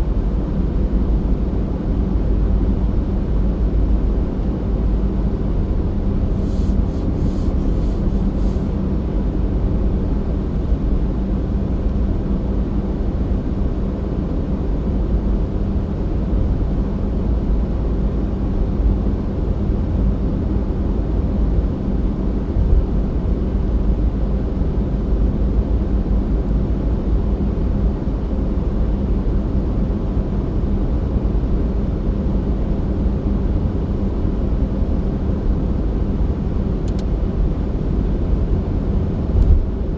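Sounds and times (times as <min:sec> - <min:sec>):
car engine and road noise: 0:35.0 - 0:39.9.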